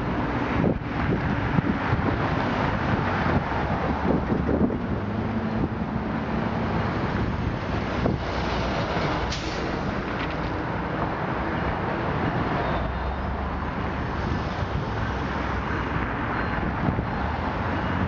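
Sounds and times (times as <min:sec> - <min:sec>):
diesel locomotive engine drone: 0:00.0 - 0:18.0
train wheel and rail noise: 0:07.8 - 0:11.1.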